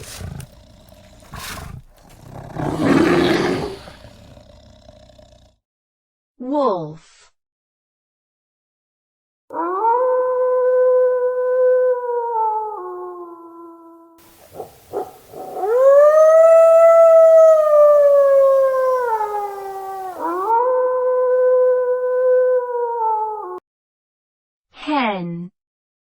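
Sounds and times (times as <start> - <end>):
wolf howling: 0.0 - 4.0, 14.2 - 20.5.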